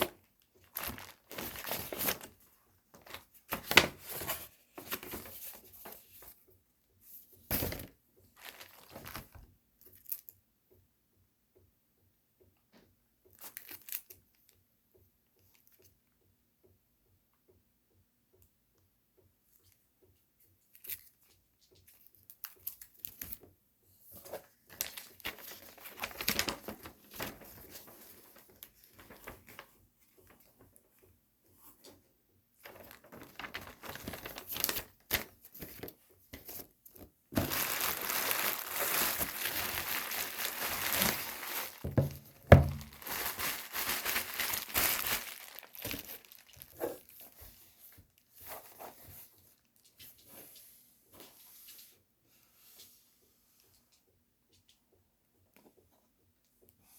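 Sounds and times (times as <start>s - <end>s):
packaging crinkling and tearing: 0.0s - 2.3s, 8.4s - 9.4s, 32.6s - 35.8s, 37.4s - 47.4s.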